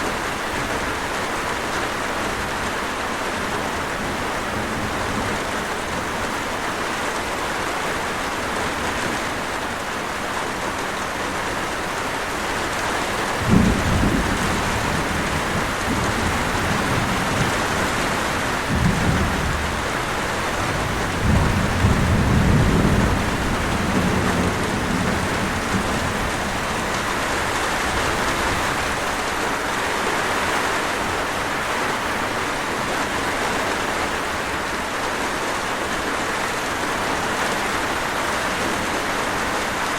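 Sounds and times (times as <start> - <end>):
steady rain: 0.0 - 39.9
thunder rumbling: 13.3 - 29.4.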